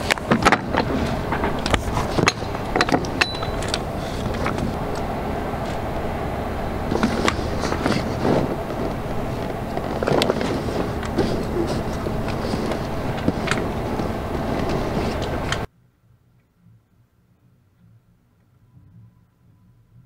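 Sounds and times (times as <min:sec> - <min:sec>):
clicks and knocks: 0:00.0 - 0:06.1
low background rumble: 0:00.0 - 0:20.0.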